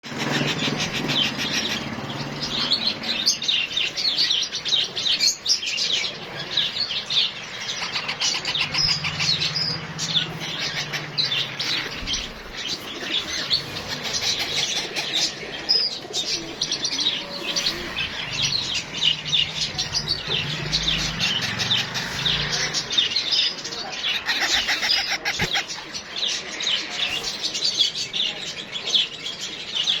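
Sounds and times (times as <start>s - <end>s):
parrot chicks chirping: 0.0s - 30.0s.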